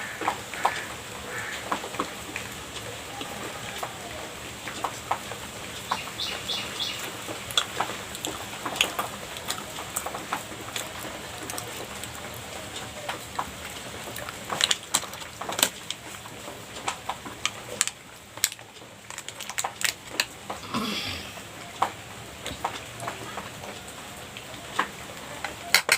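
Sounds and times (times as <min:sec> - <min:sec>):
person chewing wet mouth sounds: 0:07.5 - 0:12.4.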